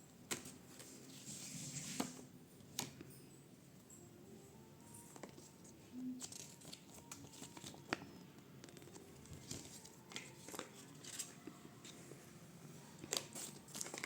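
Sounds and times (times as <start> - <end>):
packaging crinkling and rustling: 5.1 - 12.0, 12.9 - 14.0.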